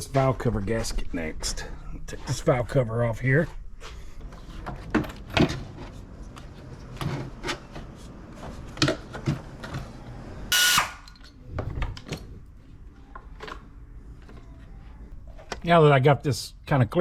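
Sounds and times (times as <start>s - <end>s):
power tool burst: 10.5s - 11.1s.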